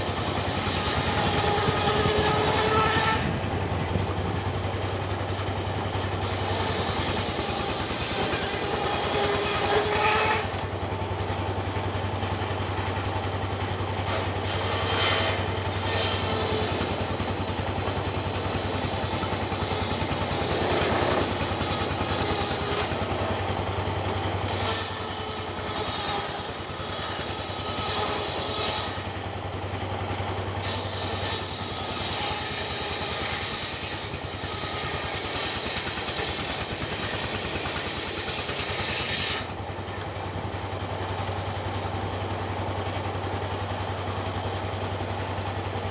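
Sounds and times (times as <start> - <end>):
engine humming: 0.0 - 24.5, 39.4 - 45.9.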